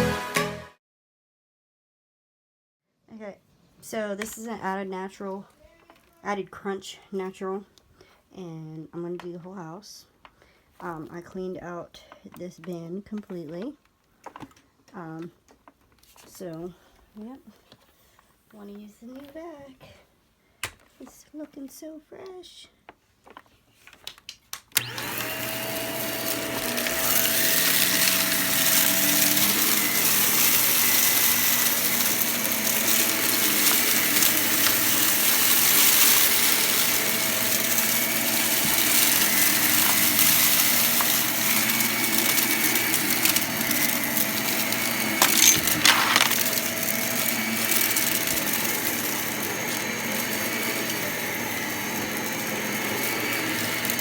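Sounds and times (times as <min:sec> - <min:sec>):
vacuum cleaner running: 0:24.8 - 0:54.0
vacuum sucking up crunchy debris: 0:24.8 - 0:54.0.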